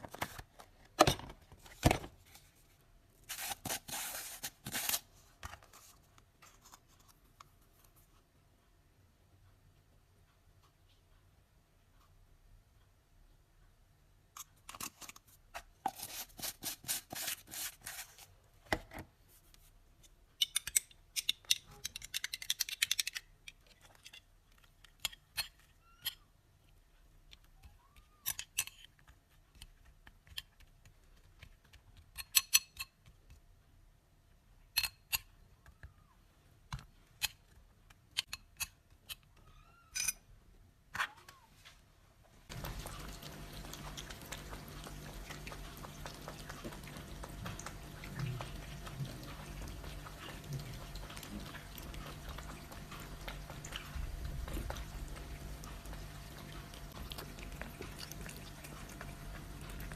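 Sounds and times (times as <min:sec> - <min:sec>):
utensils and containers clicking: 0:20.4 - 0:26.2.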